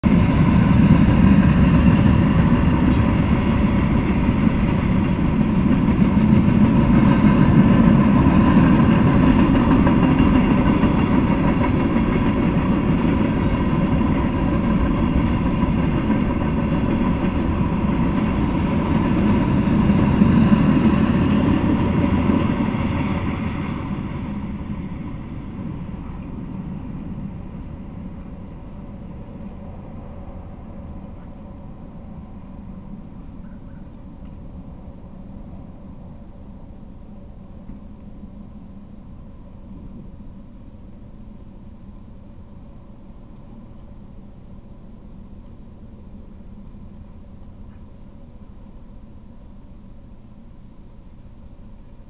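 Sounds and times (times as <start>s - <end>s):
freight cars rumbling on rails: 0.0s - 41.4s.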